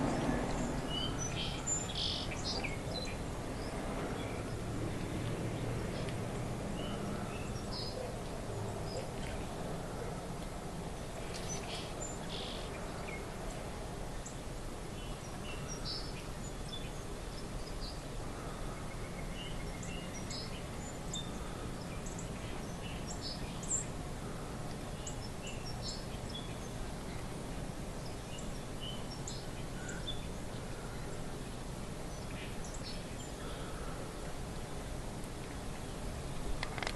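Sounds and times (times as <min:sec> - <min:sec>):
small birds chirping: 0:00.0 - 0:04.6, 0:11.1 - 0:13.3, 0:14.2 - 0:31.4, 0:32.0 - 0:34.2.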